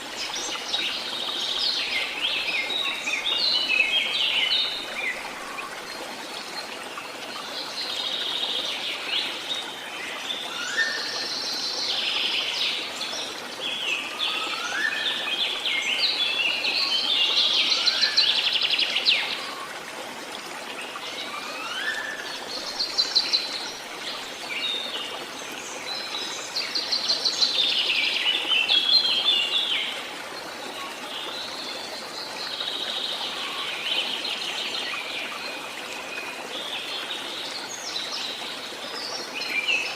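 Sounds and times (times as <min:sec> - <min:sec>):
songbirds singing: 0:00.0 - 0:19.7.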